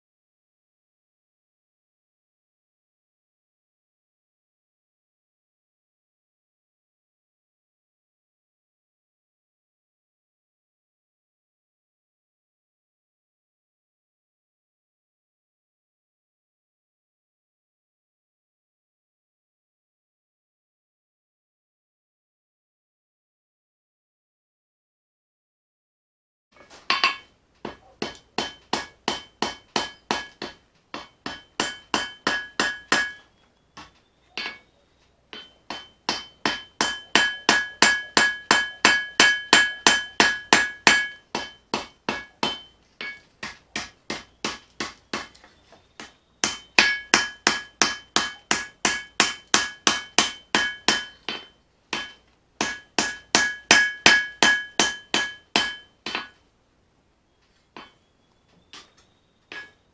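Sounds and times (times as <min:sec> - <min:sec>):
hammer forging steel on anvil: 0:26.6 - 0:56.4, 0:57.7 - 0:58.1, 0:58.7 - 0:59.9.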